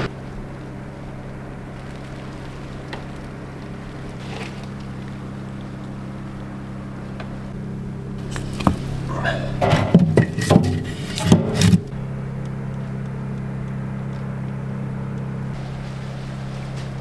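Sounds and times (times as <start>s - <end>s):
generator engine running: 0.0s - 17.0s
knocks: 8.3s - 12.0s.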